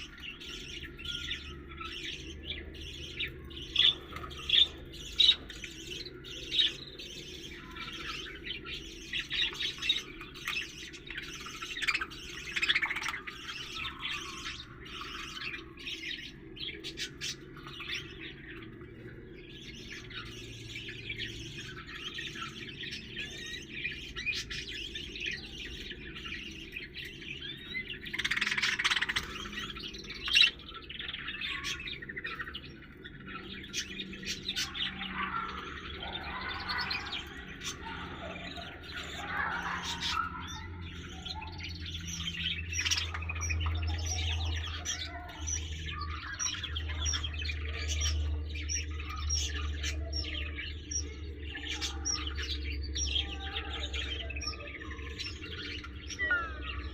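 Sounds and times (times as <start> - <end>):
lovebirds chirping and squawking: 0.0 - 56.9.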